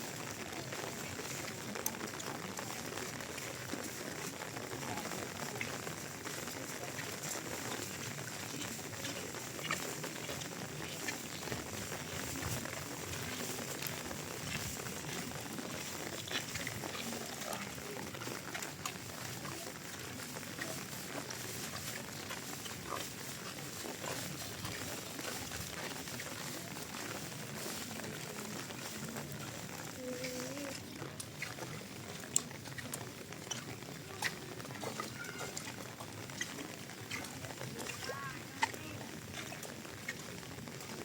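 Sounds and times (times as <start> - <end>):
steady rain falling: 0.0 - 41.0
water drips ticking: 0.0 - 41.0.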